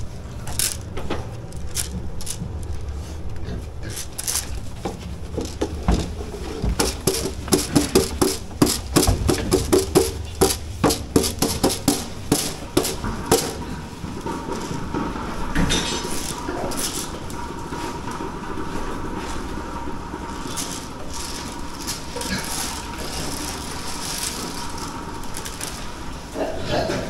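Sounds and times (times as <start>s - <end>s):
sharp metallic knocks and clanks: 4.8s - 17.4s.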